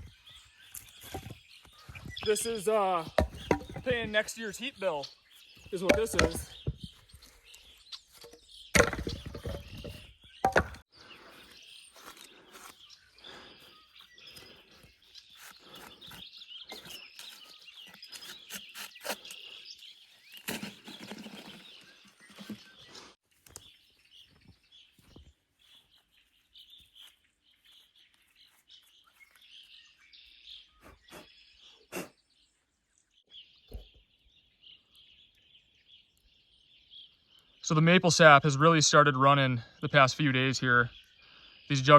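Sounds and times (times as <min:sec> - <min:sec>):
songbirds chirping: 0:00.0 - 0:41.9
firewood being split: 0:08.7 - 0:09.9, 0:20.3 - 0:22.5.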